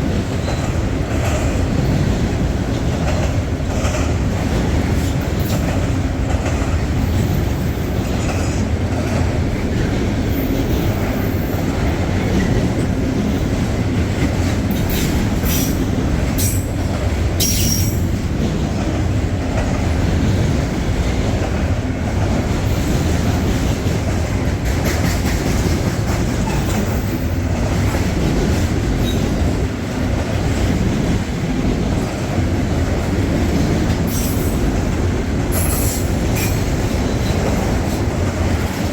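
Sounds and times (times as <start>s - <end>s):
freight train rumbling on rails: 0.0s - 38.9s
train wheel squeal: 0.4s - 0.9s, 7.0s - 8.6s, 10.3s - 11.7s, 14.7s - 16.7s, 17.4s - 18.1s, 29.0s - 29.4s, 34.0s - 34.7s, 35.5s - 38.0s.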